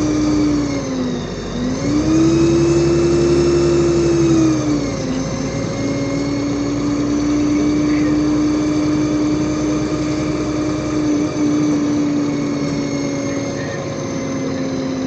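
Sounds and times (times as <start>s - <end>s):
bus engine drone with whine: 0.0s - 15.0s.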